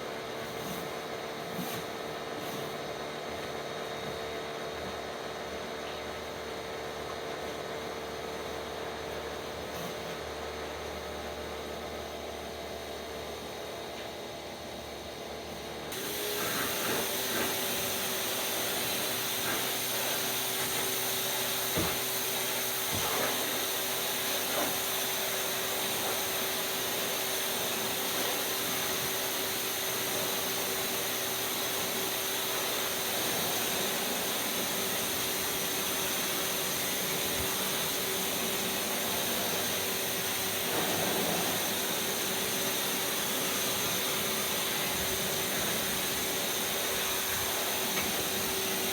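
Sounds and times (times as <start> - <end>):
high-pressure water jet hissing: 15.9 - 48.9
pressure washer hum: 15.9 - 48.9.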